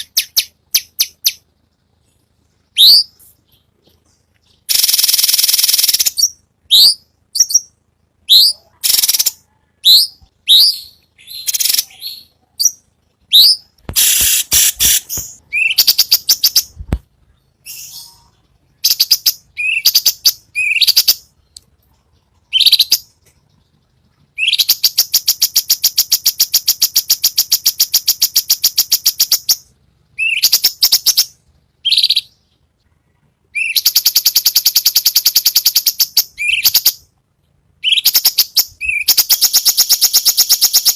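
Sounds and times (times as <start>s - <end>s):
bird buzzy rattle: 4.7s - 6.2s.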